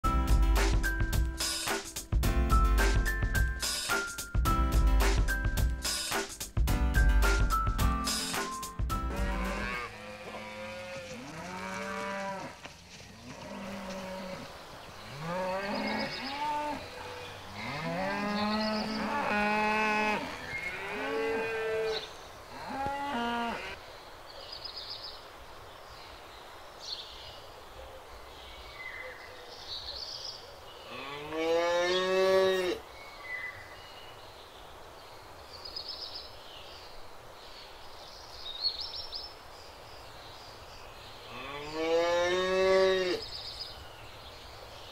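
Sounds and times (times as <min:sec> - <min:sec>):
cows mooing: 0:09.1 - 0:12.6, 0:13.2 - 0:14.5, 0:15.1 - 0:23.8, 0:30.9 - 0:32.8.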